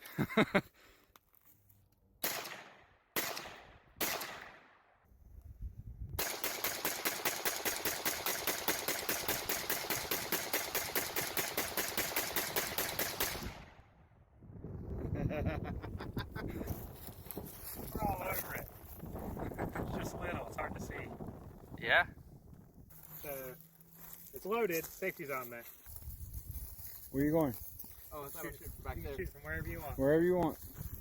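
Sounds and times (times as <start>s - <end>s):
single gunshots: 2.2s - 4.8s
rapid gunfire burst: 6.2s - 13.6s.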